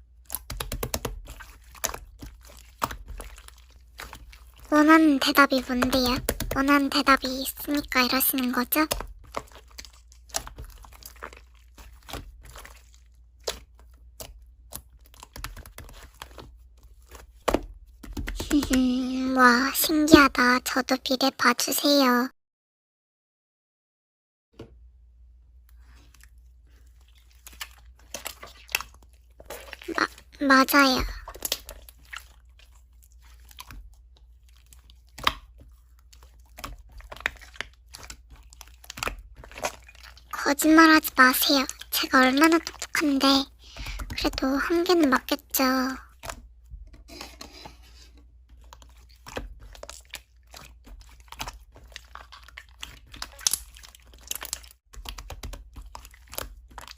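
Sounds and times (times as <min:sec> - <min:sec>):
slime crackling and squishing: 0:00.0 - 0:22.1, 0:25.5 - 0:56.9
slime clicking and popping: 0:00.2 - 0:03.2, 0:35.1 - 0:35.6, 0:49.2 - 0:56.9.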